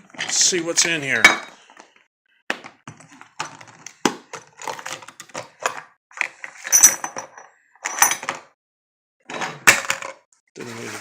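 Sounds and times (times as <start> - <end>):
metal parts clinking and rattling: 6.5 - 8.4.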